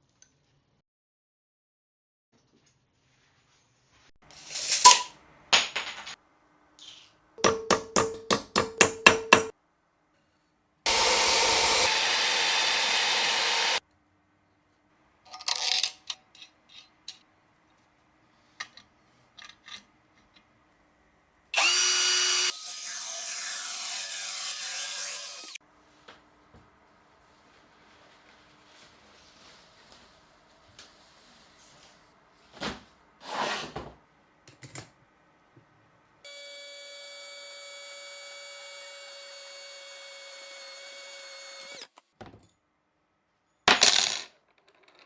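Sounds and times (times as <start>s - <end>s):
motor whining: 10.9s - 13.8s, 21.6s - 22.5s, 36.3s - 42.0s
power tool running: 10.9s - 13.8s, 21.6s - 25.6s, 36.3s - 42.0s.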